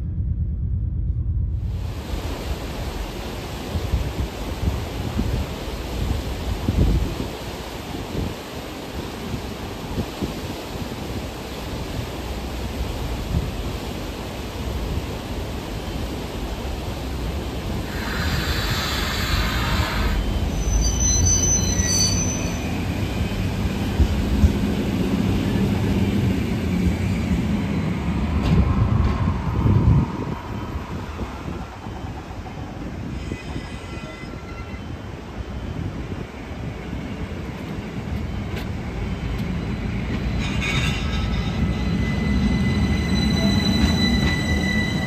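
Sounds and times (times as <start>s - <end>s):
electric train passing: 0.0s - 45.0s
brief high squeal: 18.0s - 22.9s, 33.2s - 35.0s, 40.4s - 45.0s.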